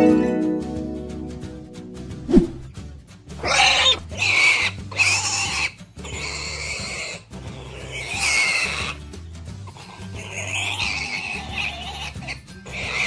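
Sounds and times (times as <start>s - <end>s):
pig squealing and grunting: 3.4s - 9.0s, 9.7s - 13.0s.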